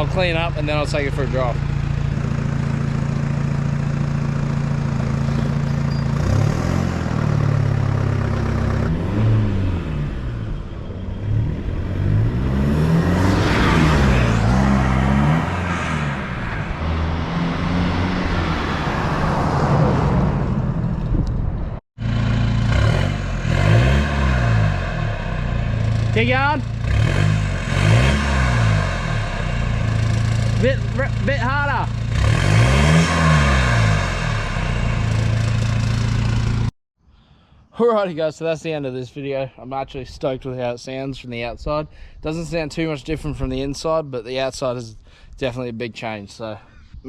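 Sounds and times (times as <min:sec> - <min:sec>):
engine idling and revving: 0:00.0 - 0:36.8.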